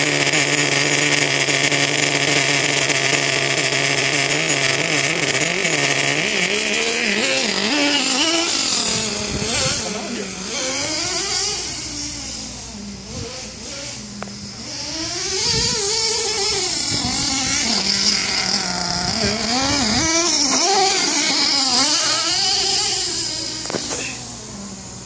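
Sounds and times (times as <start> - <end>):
rc truck nitro engine buzzing: 0.0 - 25.0.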